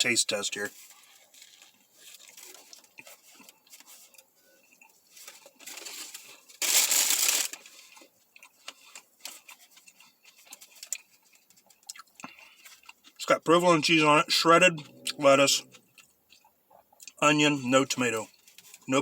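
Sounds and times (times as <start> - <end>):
paper wrapper crinkling: 0.5 - 4.3, 5.0 - 11.8.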